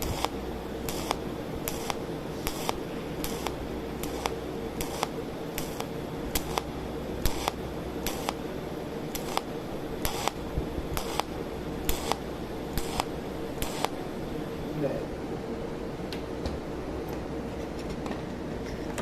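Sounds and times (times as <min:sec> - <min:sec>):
welding machine snapping clicks: 0:00.0 - 0:08.5, 0:09.1 - 0:14.0
low hum: 0:00.0 - 0:19.0.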